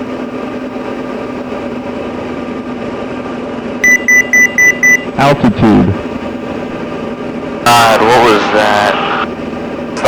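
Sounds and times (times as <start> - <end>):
aircraft engine droning: 0.0 - 10.0
rapid high beeps: 3.8 - 5.1.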